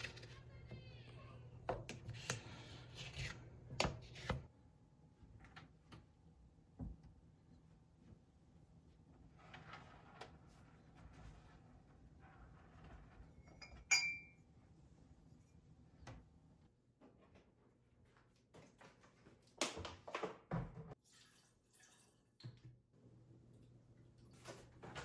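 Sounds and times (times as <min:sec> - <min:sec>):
dishes and glassware clinking: 0:13.4 - 0:14.4.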